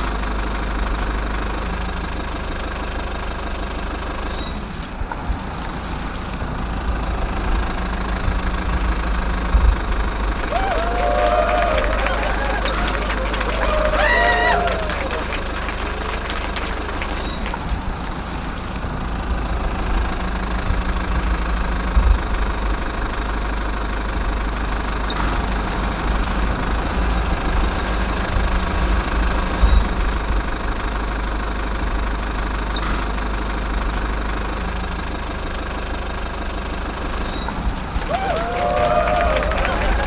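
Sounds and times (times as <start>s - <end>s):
low engine hum: 0.0s - 40.0s.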